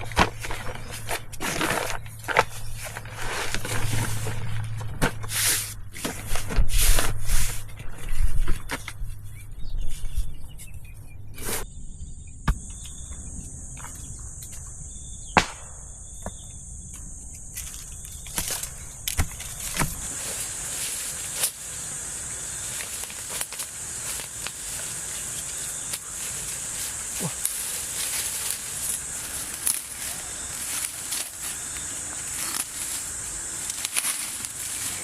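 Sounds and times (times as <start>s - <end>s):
insects buzzing drone: 11.6s - 35.0s
broad hiss: 19.6s - 35.0s.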